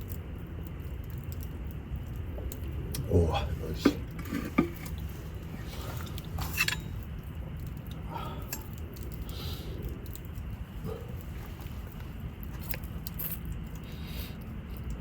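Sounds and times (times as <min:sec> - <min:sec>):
person chewing food: 0:04.1 - 0:15.0.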